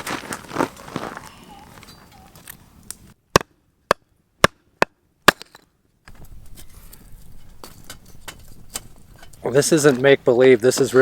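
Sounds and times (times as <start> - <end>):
axe chopping wood: 3.3 - 5.6.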